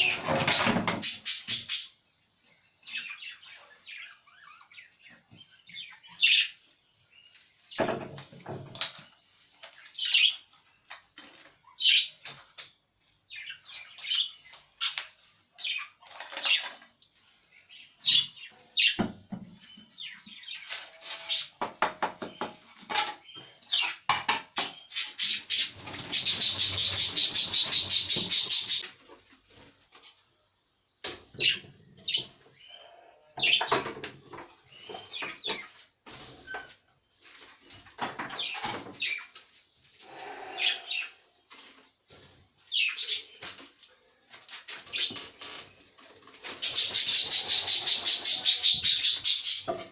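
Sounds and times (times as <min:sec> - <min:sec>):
budgerigars chirping and chattering: 0:00.0 - 0:02.0, 0:02.8 - 0:06.6, 0:13.3 - 0:16.8, 0:24.6 - 0:28.8, 0:42.7 - 0:43.4, 0:46.4 - 0:49.9.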